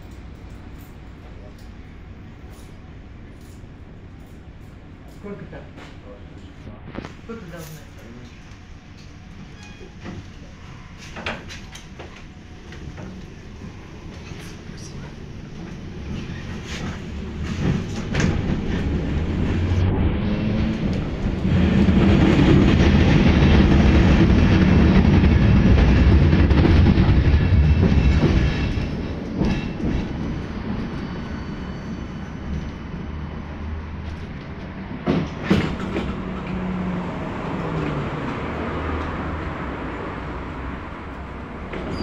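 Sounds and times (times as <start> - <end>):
tram rumbling on rails: 0.0 - 42.0.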